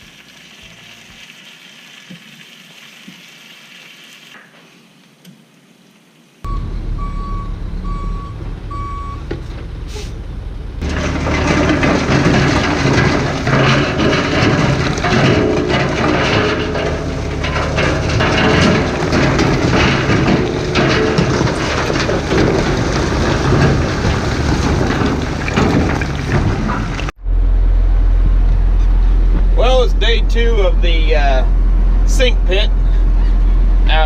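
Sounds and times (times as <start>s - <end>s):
reversing alarm beeping: 6.5s - 9.3s
heavy machinery engine: 6.5s - 34.0s.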